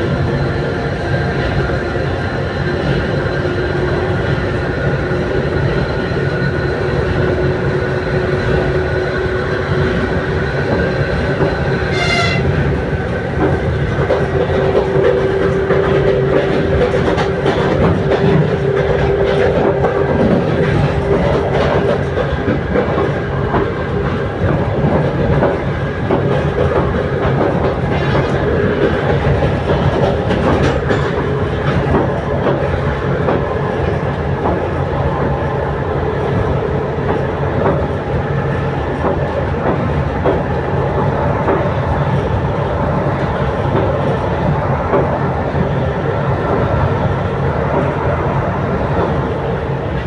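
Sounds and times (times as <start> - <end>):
train wheels clattering on rails: 0.0 - 50.0
short high tone: 11.9 - 12.6.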